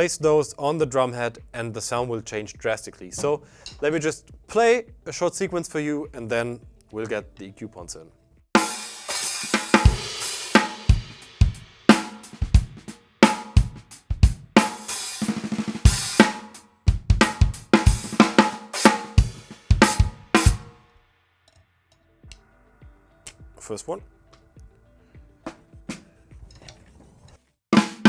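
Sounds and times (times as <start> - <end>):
drum kit groove: 1.3 - 7.3, 8.5 - 20.8, 22.2 - 26.6, 27.7 - 28.0
cymbals: 8.6 - 16.6, 17.2 - 20.8
ringing snare drum: 8.6 - 20.8, 27.8 - 28.0
bass drum: 9.5 - 20.7.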